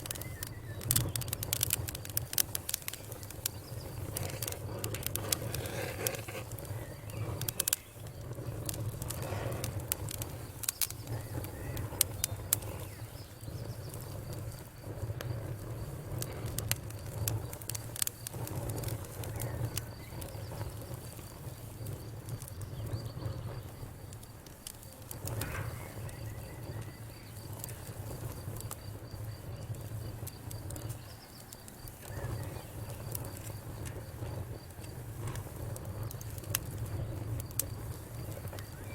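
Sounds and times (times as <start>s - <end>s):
low rumble of fire: 0.0s - 38.9s
wood fire crackling and popping: 0.0s - 38.9s.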